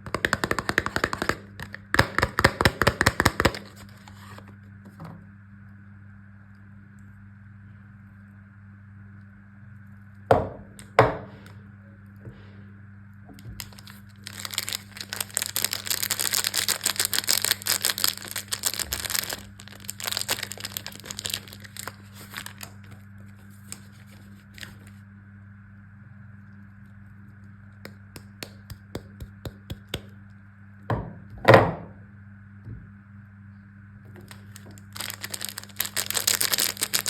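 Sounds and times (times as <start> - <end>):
wrapper tearing and crinkling: 0.0 - 4.5, 13.6 - 24.9, 34.2 - 37.0.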